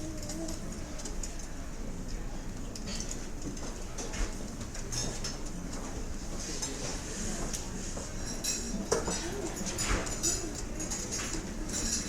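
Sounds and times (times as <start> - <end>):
indistinct chatter of diners: 0.0 - 12.0
cutlery and dishes clinking: 8.4 - 12.0.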